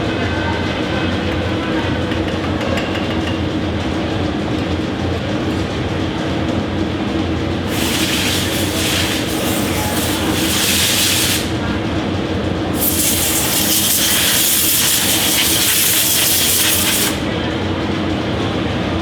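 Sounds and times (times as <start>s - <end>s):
machinery humming: 3.7s - 19.0s
hissing bursts: 7.7s - 11.6s, 12.8s - 17.2s.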